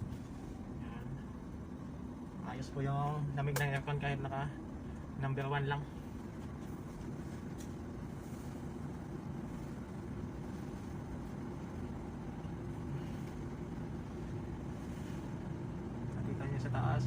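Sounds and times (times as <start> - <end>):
air conditioning running: 0.0 - 17.0
vehicle engine idling: 0.0 - 17.0.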